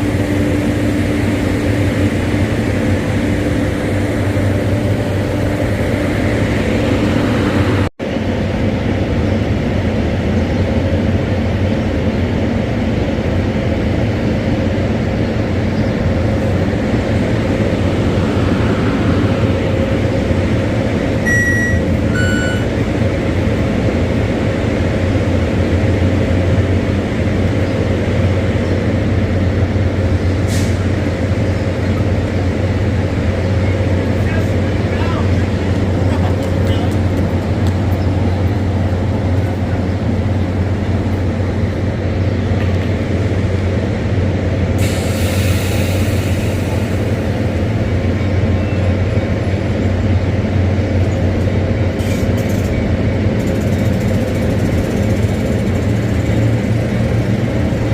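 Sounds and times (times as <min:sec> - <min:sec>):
diesel train engine hum: 0:00.0 - 0:57.9
electronic beeps: 0:21.3 - 0:22.7.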